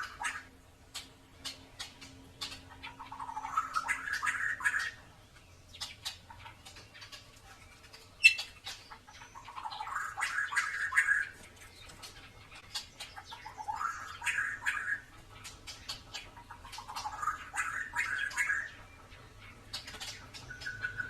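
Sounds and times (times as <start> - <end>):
bird singing warbled phrases: 0.0 - 21.0.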